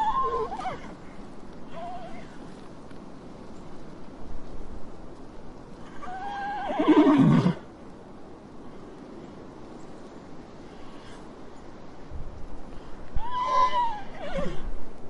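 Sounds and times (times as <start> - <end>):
horse whinnying: 0.0 - 1.0, 6.0 - 7.6, 13.2 - 14.7.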